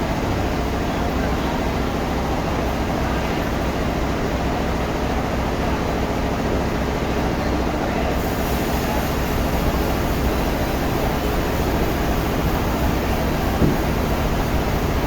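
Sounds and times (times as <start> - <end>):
sawmill machinery running: 9.1 - 15.0.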